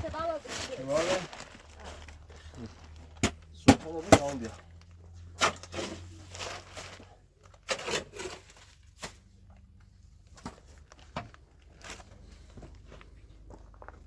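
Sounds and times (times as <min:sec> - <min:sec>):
rustling: 0:00.0 - 0:14.0.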